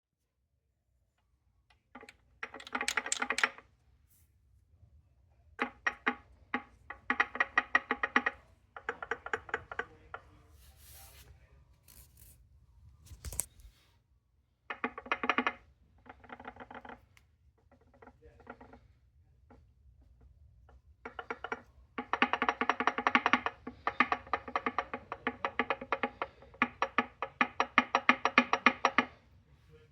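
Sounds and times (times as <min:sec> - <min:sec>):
rapid knocking inside gearbox: 0:05.6 - 0:10.0, 0:21.1 - 0:29.2.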